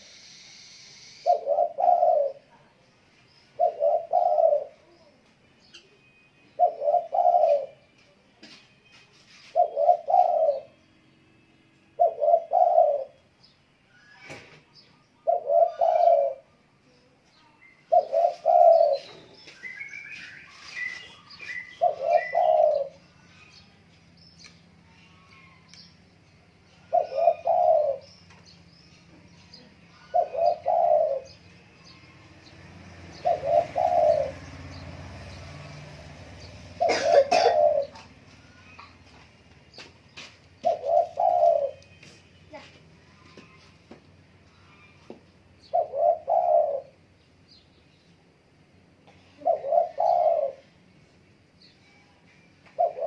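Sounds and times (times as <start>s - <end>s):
dove cooing: 1.1s - 2.6s, 3.5s - 5.1s, 6.5s - 7.8s, 9.3s - 10.8s, 12.0s - 13.2s, 15.2s - 16.5s, 17.8s - 23.5s, 26.7s - 28.2s, 29.5s - 31.4s, 33.0s - 35.3s, 36.3s - 39.2s, 40.2s - 43.7s, 45.6s - 47.0s, 49.1s - 50.8s, 52.8s - 53.0s
small birds chirping: 12.0s - 48.3s, 49.0s - 50.7s.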